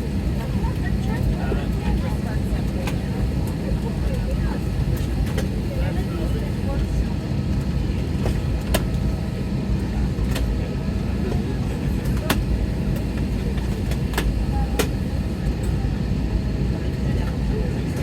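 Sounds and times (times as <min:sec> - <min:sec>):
airliner cabin rumble: 0:00.0 - 0:18.0.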